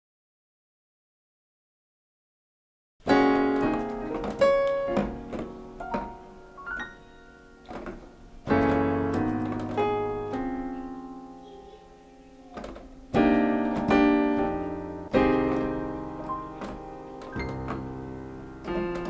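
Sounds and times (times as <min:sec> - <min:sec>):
piano chords ringing: 0:03.0 - 0:19.0.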